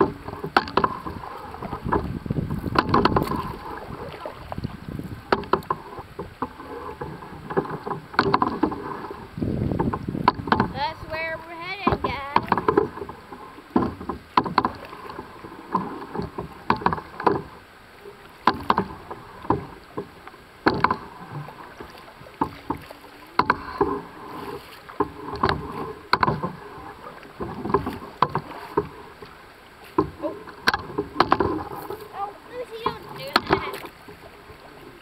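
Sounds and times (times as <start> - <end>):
paddle strokes in water: 0.0 - 35.0
paddles knocking canoe hull: 0.0 - 35.0.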